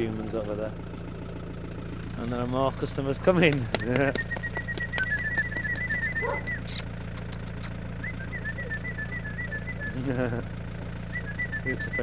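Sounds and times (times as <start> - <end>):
car engine idling: 0.0 - 12.0
rapid high chirps: 3.7 - 10.0, 11.0 - 12.0.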